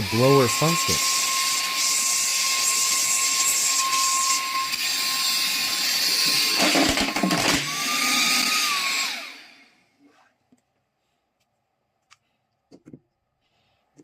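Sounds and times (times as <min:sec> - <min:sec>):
mini vacuum cleaner motor whine: 0:00.0 - 0:10.2.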